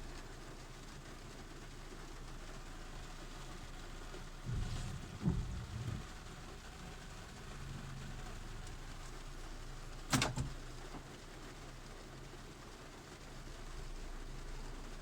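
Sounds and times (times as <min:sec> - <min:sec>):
car engine humming: 0:02.9 - 0:11.2
dull thumps: 0:04.4 - 0:06.3.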